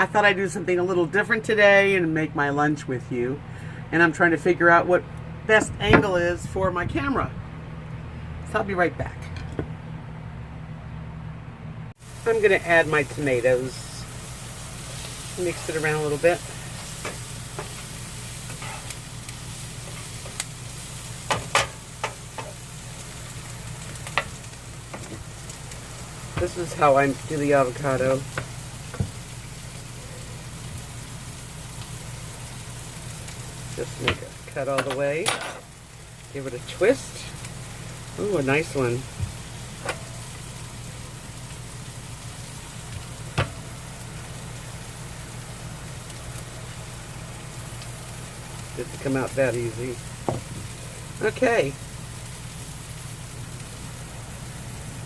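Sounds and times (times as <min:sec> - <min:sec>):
vegetables sizzling in a frying pan: 0:12.0 - 0:55.0
utensil scraping a pan: 0:15.0 - 0:19.0.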